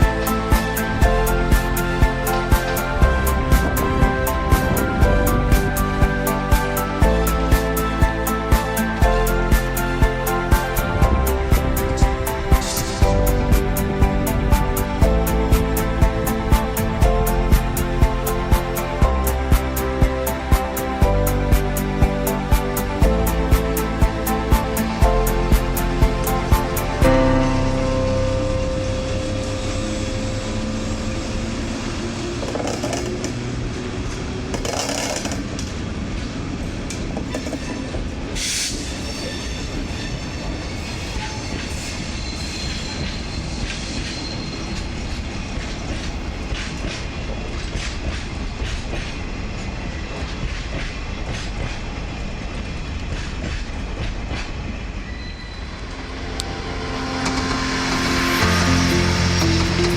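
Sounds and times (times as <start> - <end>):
train rumble: 0.0 - 59.9
train wheels clattering on rails: 32.1 - 55.7
sharp wheel squeals: 37.3 - 45.3, 55.0 - 55.8.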